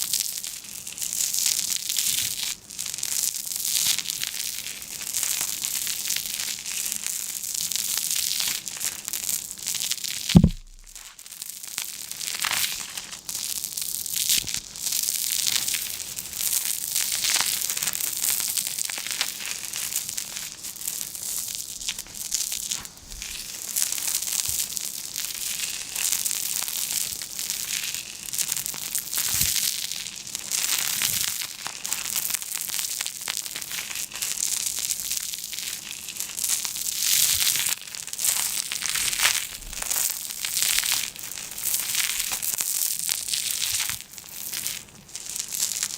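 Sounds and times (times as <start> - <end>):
material crinkling and crushing: 10.4 - 11.0.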